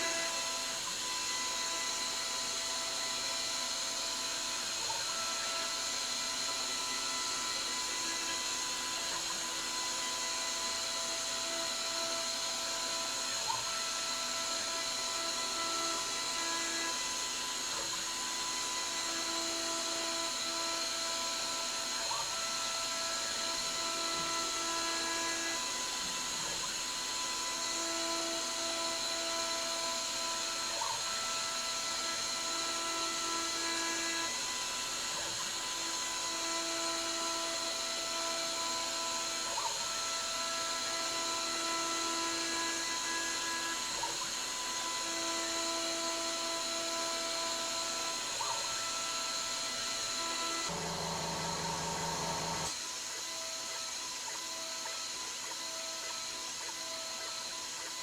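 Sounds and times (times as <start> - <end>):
mill spindle whining: 0.0 - 58.0
low motor tones: 50.3 - 52.7.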